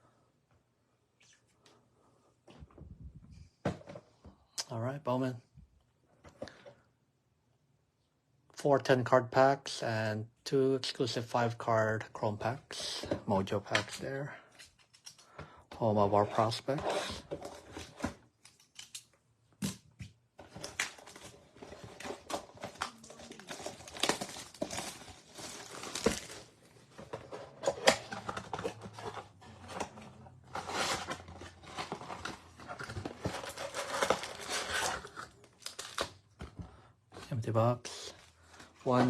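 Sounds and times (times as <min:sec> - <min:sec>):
plastic wrapping crinkling: 0:20.7 - 0:26.6, 0:30.7 - 0:36.2.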